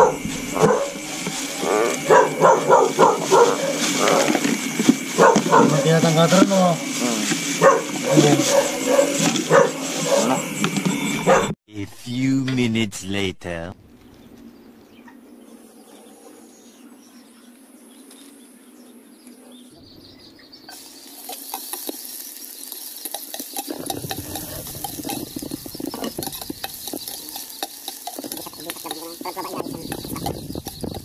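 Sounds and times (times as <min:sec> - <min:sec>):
garlic sizzling in oil: 0:00.1 - 0:02.1, 0:20.5 - 0:31.0
ladle scraping metal pot: 0:23.1 - 0:31.0.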